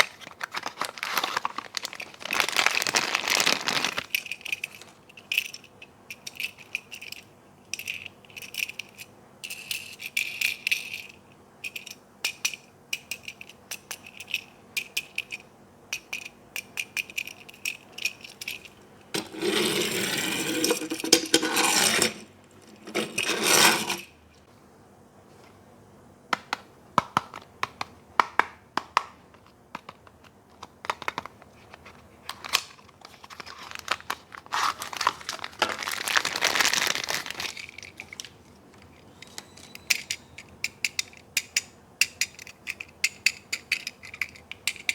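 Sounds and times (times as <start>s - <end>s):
packaging rustling: 0.0s - 5.0s, 31.6s - 39.6s
plastic toy pieces clicking: 7.8s - 18.7s, 35.8s - 44.9s.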